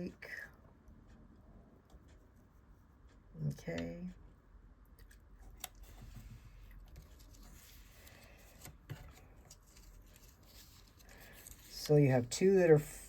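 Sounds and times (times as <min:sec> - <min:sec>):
light clicks of cardstock: 0:05.0 - 0:12.2
paper rustling: 0:05.5 - 0:12.2.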